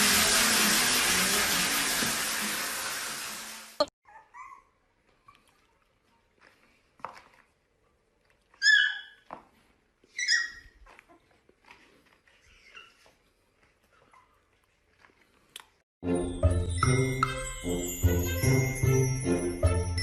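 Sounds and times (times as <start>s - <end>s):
puppy yelping: 4.0s - 5.4s, 8.5s - 9.3s, 10.1s - 11.4s, 12.4s - 13.1s.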